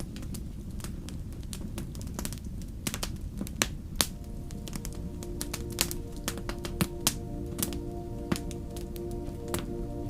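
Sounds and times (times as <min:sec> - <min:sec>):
fire popping: 0:00.0 - 0:09.7
wood fire crackling: 0:00.0 - 0:10.0
soft ambient music: 0:04.0 - 0:10.0.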